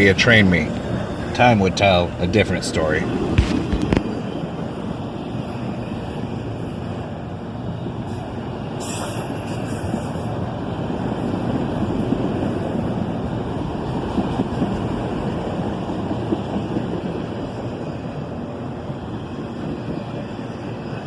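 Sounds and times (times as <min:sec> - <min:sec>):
train wheels rumbling on rail: 0:00.0 - 0:21.0
high metallic squeal: 0:08.0 - 0:10.4.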